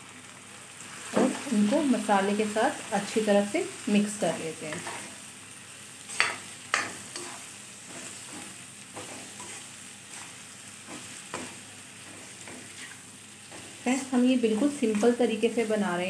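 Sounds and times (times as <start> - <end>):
vegetables sizzling in a wok: 0.0 - 16.0
metal spatula scraping a pan: 4.7 - 5.2, 6.1 - 15.8.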